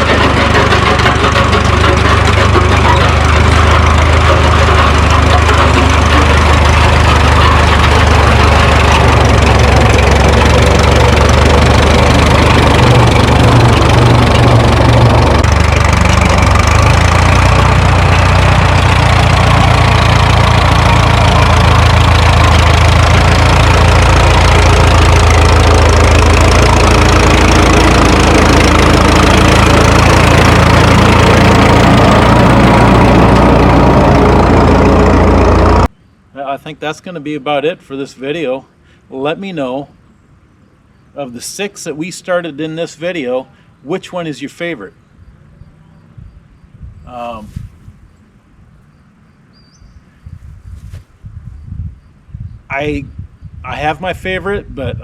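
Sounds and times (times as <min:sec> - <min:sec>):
tractor engine running: 0:00.0 - 0:35.9.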